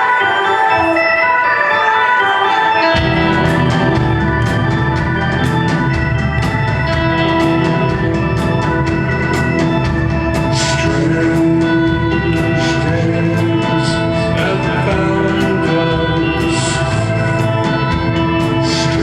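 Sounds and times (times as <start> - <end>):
electric organ melody: 0.0 - 19.0
live rock band playing: 0.0 - 19.0.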